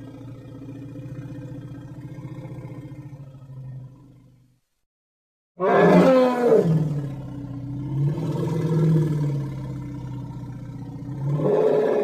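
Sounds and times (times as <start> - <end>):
mammoth call: 5.6 - 6.8.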